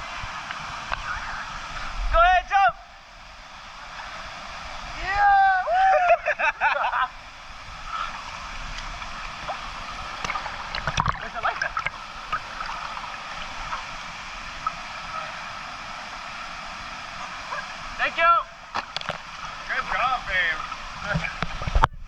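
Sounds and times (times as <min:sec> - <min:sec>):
waterfall rushing into pool: 0:00.0 - 0:22.0
people shouting: 0:05.0 - 0:06.2.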